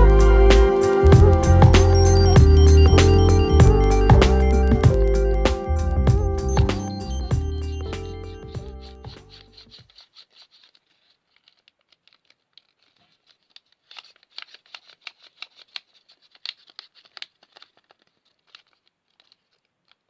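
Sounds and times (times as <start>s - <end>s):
music: 0.0s - 9.4s
paper crinkling and tapping: 9.1s - 20.0s.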